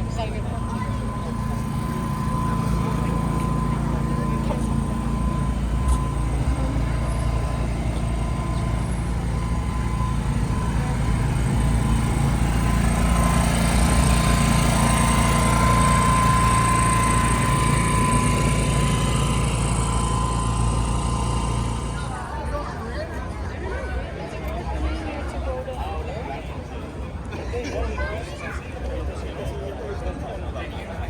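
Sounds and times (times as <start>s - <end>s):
car engine running: 0.0s - 22.3s
thin steady whine: 0.0s - 22.6s.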